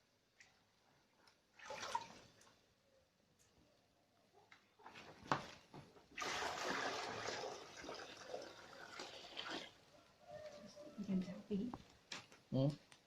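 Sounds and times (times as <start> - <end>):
water pouring and splashing: 1.5 - 2.6, 5.3 - 9.8.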